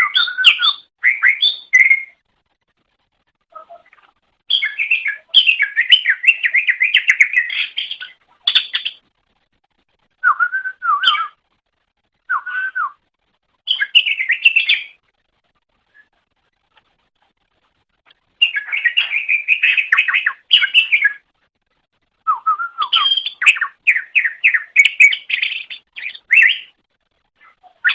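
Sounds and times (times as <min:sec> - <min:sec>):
bird warbling and whistling: 0:00.0 - 0:02.2, 0:03.5 - 0:09.0, 0:10.2 - 0:11.4, 0:12.3 - 0:12.9, 0:13.7 - 0:15.0, 0:18.4 - 0:21.2, 0:22.3 - 0:26.7, 0:27.4 - 0:27.9.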